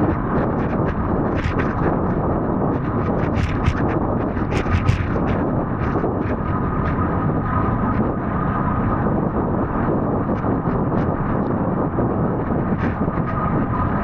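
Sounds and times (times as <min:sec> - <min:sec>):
wind rumbling on microphone: 0:00.0 - 0:14.0
sharp clicks and knocks: 0:00.9 - 0:01.9, 0:03.2 - 0:05.5.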